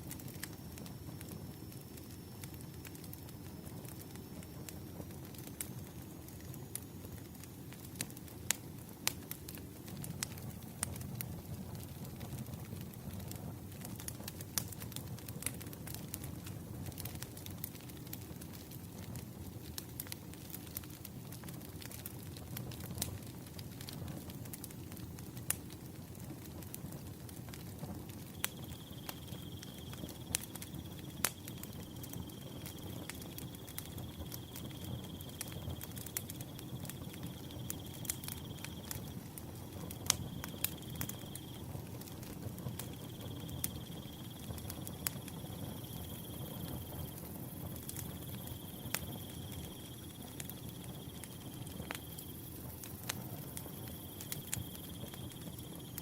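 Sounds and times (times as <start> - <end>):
wood fire crackling: 0.0 - 56.0
cricket trilling: 28.3 - 56.0.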